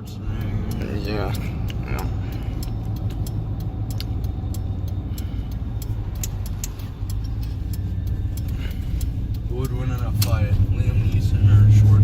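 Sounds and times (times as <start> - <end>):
engine and road rumble in vehicle: 0.0 - 12.0.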